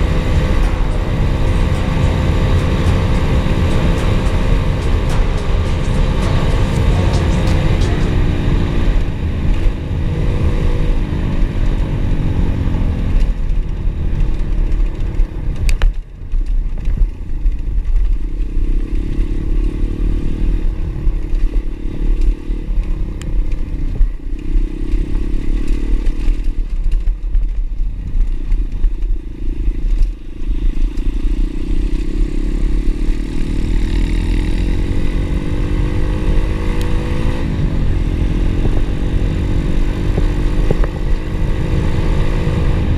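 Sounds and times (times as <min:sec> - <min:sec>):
heavy low rumble: 0:00.0 - 0:12.8
motorbike engine revving: 0:00.0 - 0:13.1, 0:30.8 - 0:42.9.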